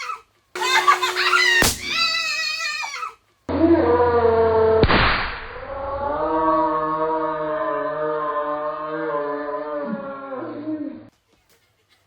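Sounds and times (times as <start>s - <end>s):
balloon bursting pop: 0.9s - 2.3s.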